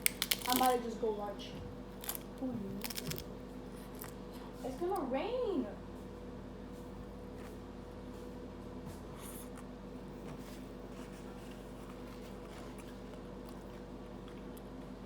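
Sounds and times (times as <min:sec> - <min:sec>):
person chewing food: 0:02.0 - 0:04.2.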